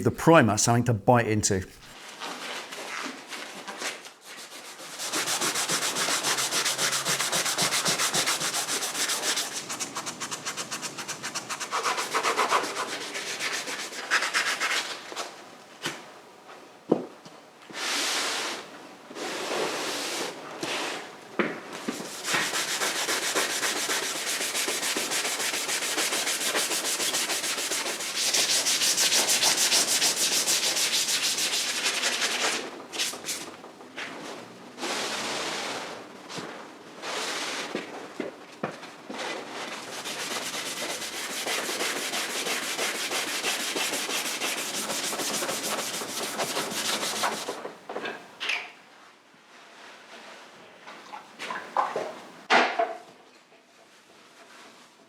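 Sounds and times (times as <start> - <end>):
sandpaper rubbing on metal: 40.8 - 47.6.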